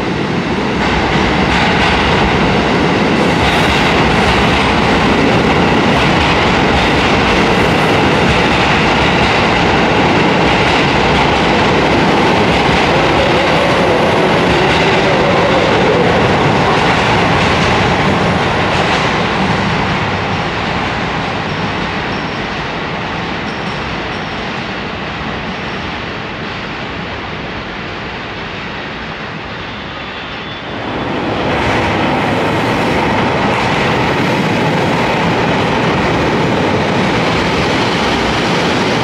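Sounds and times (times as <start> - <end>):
train wheels rumbling: 0.0 - 28.6, 29.3 - 39.0
clickety-clack over rail joints: 0.1 - 24.7.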